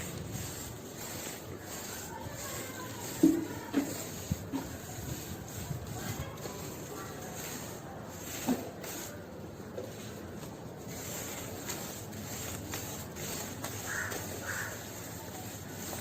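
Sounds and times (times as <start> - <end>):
steady background noise: 0.0 - 16.0
crow cawing: 13.9 - 14.8.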